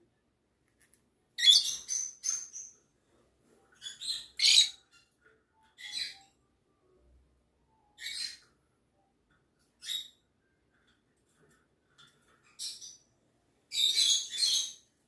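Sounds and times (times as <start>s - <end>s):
bird chirping harshly: 1.4s - 2.8s, 3.8s - 5.1s, 8.0s - 8.5s, 9.8s - 10.2s, 13.7s - 14.9s.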